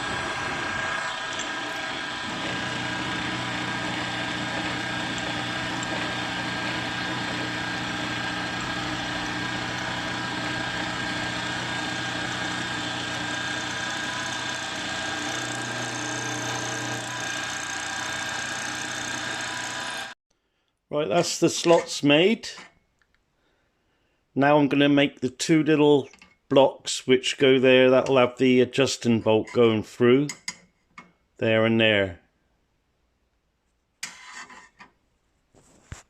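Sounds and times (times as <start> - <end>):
milling machine cutting metal: 0.0 - 20.2.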